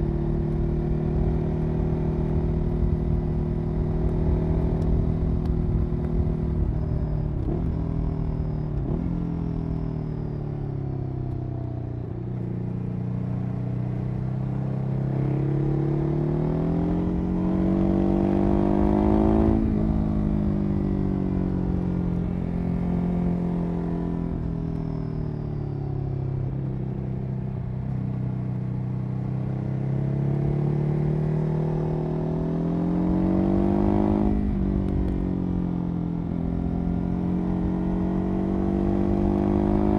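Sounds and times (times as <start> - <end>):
motorcycle engine revving: 13.4 - 25.3, 26.0 - 39.9.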